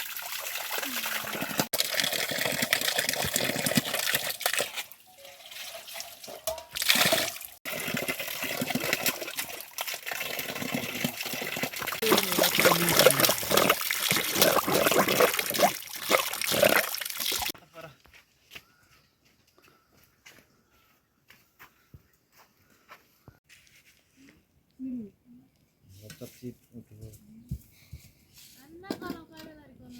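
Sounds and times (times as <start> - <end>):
water running and splashing: 0.0 - 17.6.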